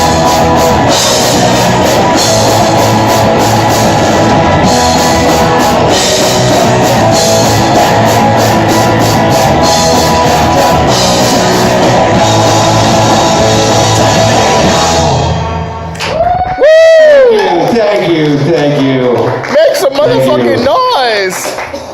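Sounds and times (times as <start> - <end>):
live rock band playing: 0.0 - 16.0
amplified guitars: 0.0 - 17.3
drums: 0.0 - 18.4.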